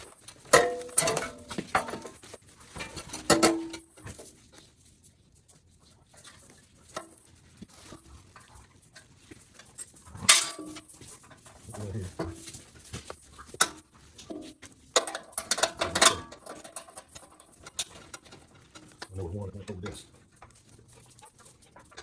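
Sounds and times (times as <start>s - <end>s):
metal bolts clinking: 13.6s - 19.1s.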